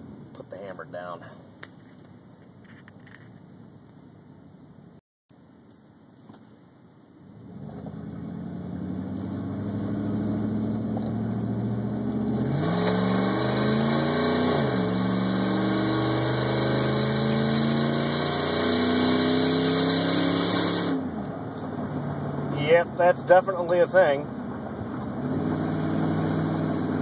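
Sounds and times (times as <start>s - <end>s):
pickup truck engine accelerating hard: 7.5s - 23.1s, 24.4s - 27.0s.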